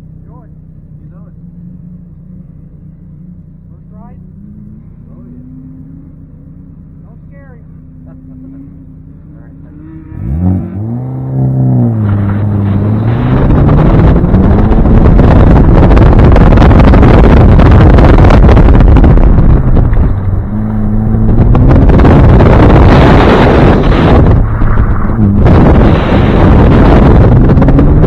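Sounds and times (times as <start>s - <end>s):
car engine pulling hard: 0.0s - 28.0s
wind buffeting microphone: 10.2s - 28.0s.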